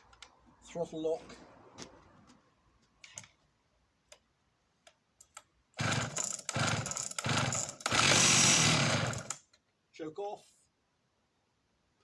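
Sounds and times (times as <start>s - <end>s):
two-stroke chainsaw engine starting: 5.8s - 9.4s.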